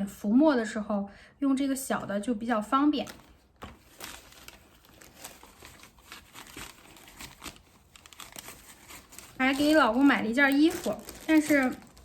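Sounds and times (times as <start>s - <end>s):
packaging crinkling and rustling: 2.9s - 12.0s.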